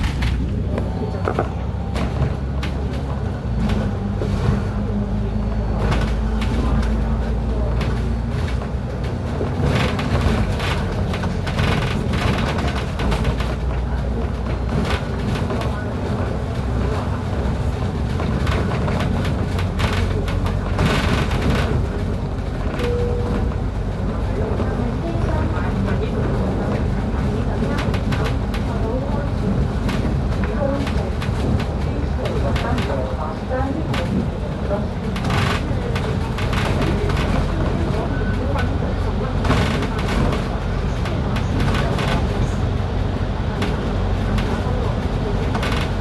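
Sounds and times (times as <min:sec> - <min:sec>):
road noise: 0:00.0 - 0:46.0
vehicle engine hum: 0:00.0 - 0:46.0.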